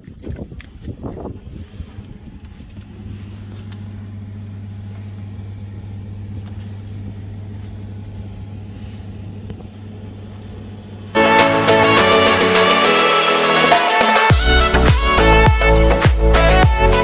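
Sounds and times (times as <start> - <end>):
low mechanical hum: 0.1 - 13.1.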